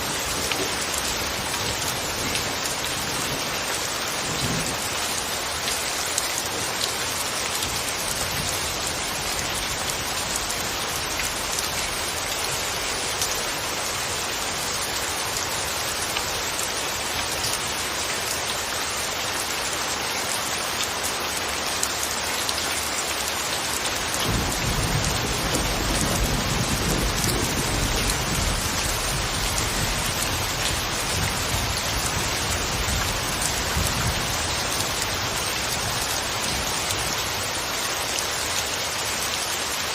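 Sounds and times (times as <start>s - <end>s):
rain pattering: 0.0s - 39.9s
thunder rumbling: 24.2s - 34.4s.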